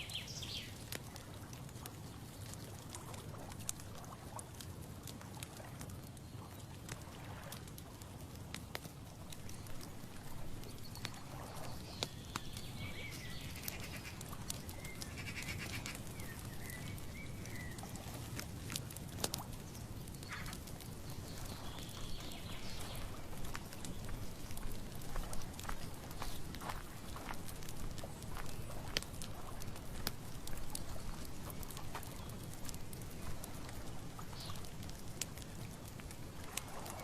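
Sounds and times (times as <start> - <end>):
high wavering animal calls: 13.4 - 16.1.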